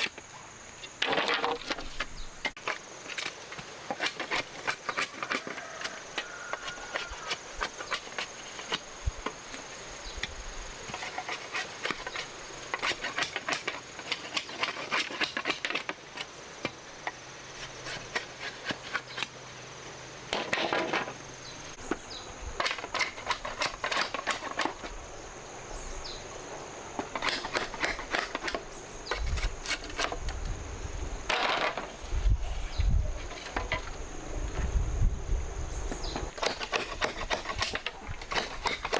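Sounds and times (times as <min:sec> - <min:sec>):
rustling scrapes: 0:01.0 - 0:08.8, 0:10.9 - 0:16.3, 0:17.0 - 0:19.7, 0:20.3 - 0:21.3, 0:27.0 - 0:30.5, 0:31.3 - 0:34.0.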